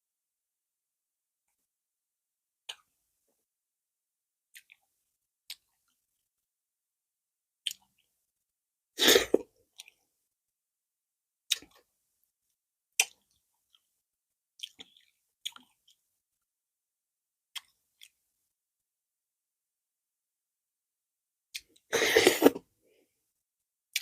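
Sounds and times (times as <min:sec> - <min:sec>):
wet mouth clicks and chewing: 0:04.5 - 0:04.9, 0:05.5 - 0:06.0, 0:07.6 - 0:08.1, 0:09.3 - 0:10.0, 0:11.5 - 0:11.9, 0:13.0 - 0:13.9, 0:14.6 - 0:16.1, 0:17.5 - 0:18.2.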